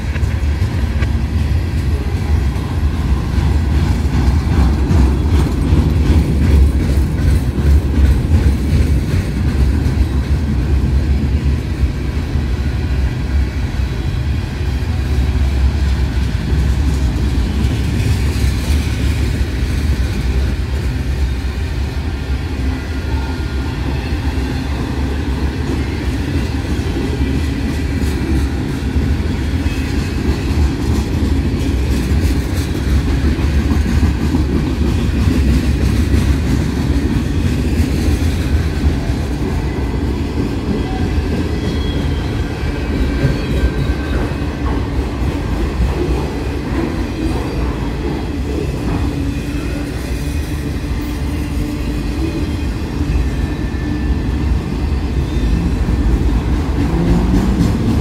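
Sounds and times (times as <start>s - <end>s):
wheels clicking over rail joints: 0.0s - 11.6s
train rumbling past: 0.0s - 58.0s.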